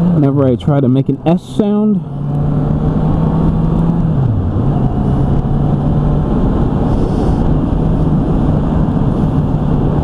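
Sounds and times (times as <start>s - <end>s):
motorcycle engine drone: 0.0s - 10.0s
wind rush on microphone: 2.2s - 10.0s.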